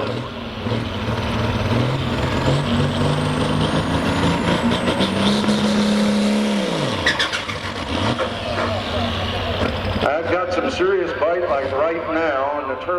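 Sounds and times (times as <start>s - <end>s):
diesel tractor engine under load: 0.0s - 12.9s
turbocharger whistle: 6.6s - 7.7s.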